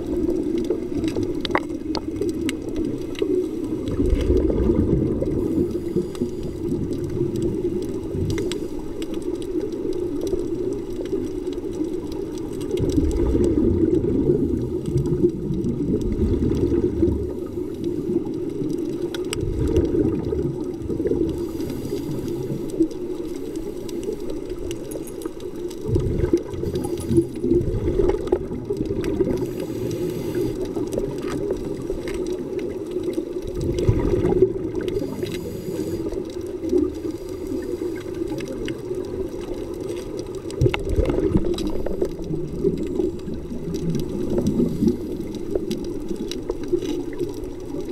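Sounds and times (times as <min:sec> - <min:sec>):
diver exhaling bubbles: 0:00.0 - 0:08.6, 0:12.7 - 0:18.4, 0:19.3 - 0:22.6, 0:25.8 - 0:32.7, 0:33.5 - 0:47.2
muffled underwater hum: 0:00.0 - 0:47.9.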